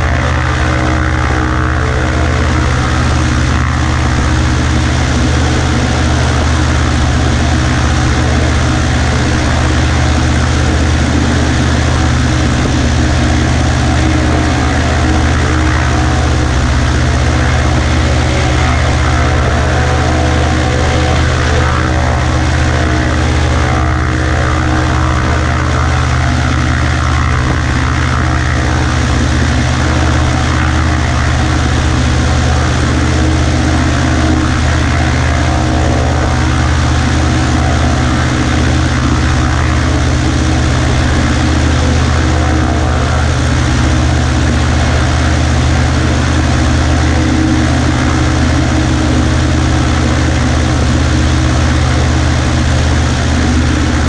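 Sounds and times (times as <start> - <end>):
light aircraft engine and propeller: 0.0 - 54.0.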